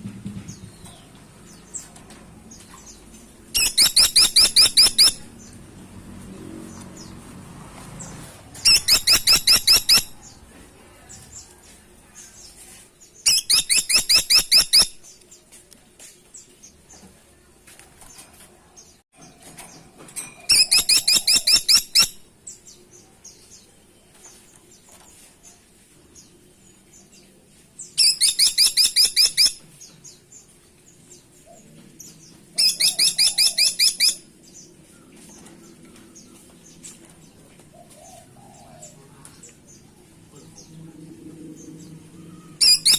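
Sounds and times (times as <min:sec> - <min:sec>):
faint bird chirps: 0:03.6 - 0:05.3, 0:08.6 - 0:10.4, 0:41.6 - 0:42.9
woodpecker calling: 0:03.6 - 0:05.3, 0:08.6 - 0:10.3, 0:20.5 - 0:22.2, 0:32.6 - 0:34.2, 0:42.6 - 0:42.9.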